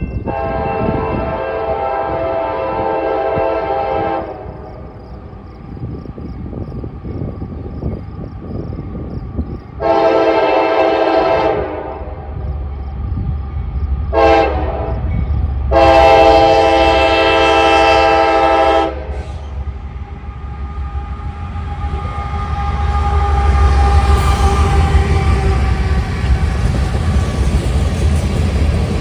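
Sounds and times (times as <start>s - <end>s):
low rumble of train: 0.0s - 29.0s
locomotive air horn blasts: 0.2s - 4.7s, 9.8s - 12.1s, 14.1s - 15.0s, 15.7s - 19.6s, 20.8s - 25.9s.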